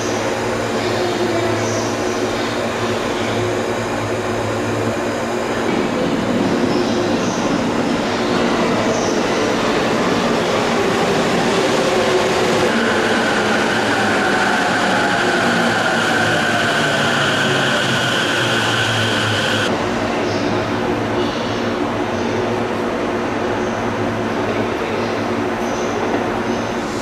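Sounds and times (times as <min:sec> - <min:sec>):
train hum: 0:00.0 - 0:27.0
steady whine: 0:16.0 - 0:19.7.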